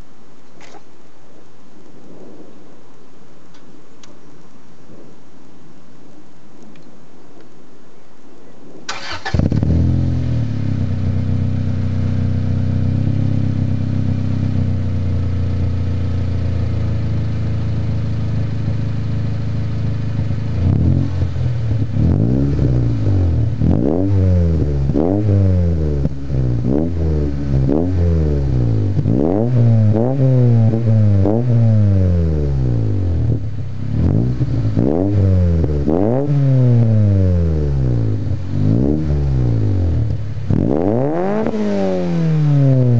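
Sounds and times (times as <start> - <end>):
car engine idling: 8.9 - 42.9
car engine revving in blips: 19.3 - 42.9.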